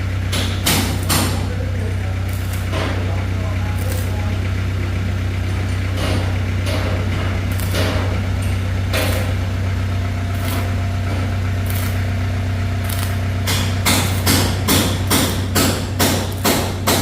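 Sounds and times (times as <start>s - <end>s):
engine idling: 0.0s - 17.0s
sharp knocks: 12.9s - 17.0s.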